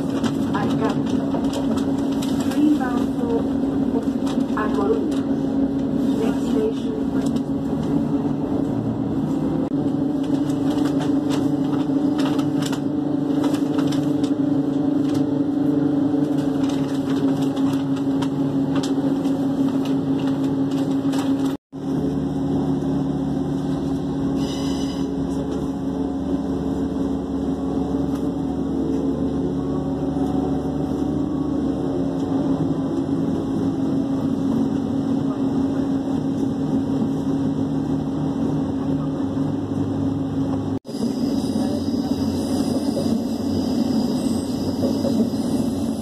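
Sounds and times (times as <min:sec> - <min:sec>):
rail clicks: 0:00.0 - 0:08.9, 0:16.1 - 0:21.6, 0:40.5 - 0:46.0
rumbling rail noise: 0:00.0 - 0:46.0
train interior hum: 0:00.0 - 0:46.0.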